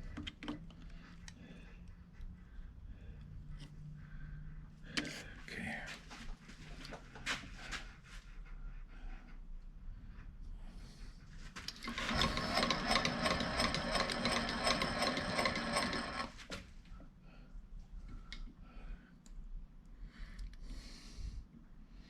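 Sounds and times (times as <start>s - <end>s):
machine tool motor humming: 11.8s - 16.4s.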